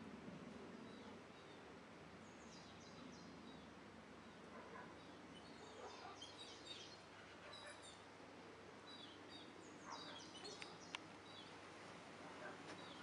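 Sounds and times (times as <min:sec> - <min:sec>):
steady outdoor hiss: 0:00.0 - 0:13.0
small birds chirping: 0:00.8 - 0:08.2, 0:08.8 - 0:13.0.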